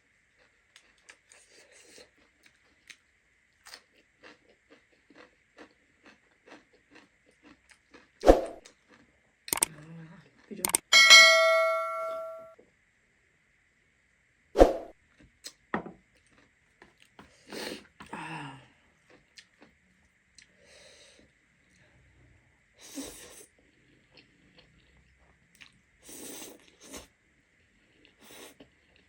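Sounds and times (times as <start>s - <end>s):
quiet chewing: 0.3s - 10.8s, 15.2s - 18.1s, 18.7s - 21.9s, 22.9s - 27.1s
small mouth clicks: 9.5s - 9.7s, 10.6s - 10.8s.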